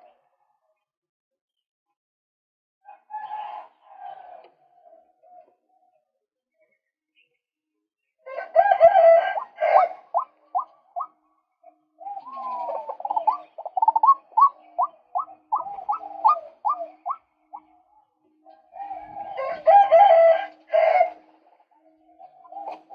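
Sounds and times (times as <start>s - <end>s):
waterhen calling: 9.3s - 11.1s, 12.0s - 17.7s.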